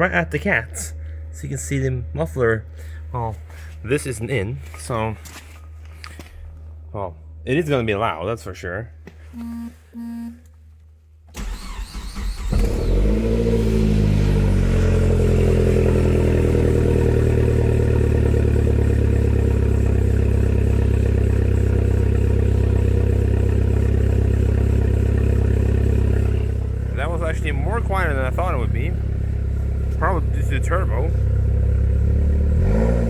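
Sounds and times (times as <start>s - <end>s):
car engine starting and idling: 11.3s - 33.0s.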